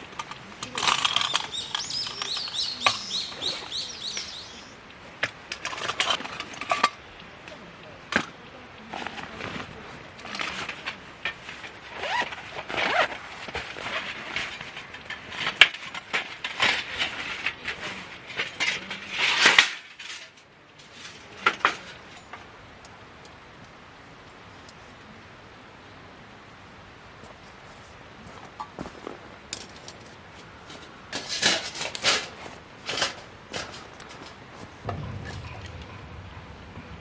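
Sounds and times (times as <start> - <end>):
cookware clinking and scraping: 0.0 - 12.4.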